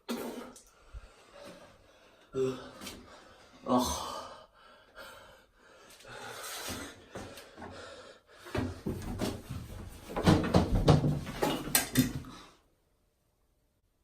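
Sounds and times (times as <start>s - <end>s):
knocks bangs and clattering: 8.6s - 12.2s.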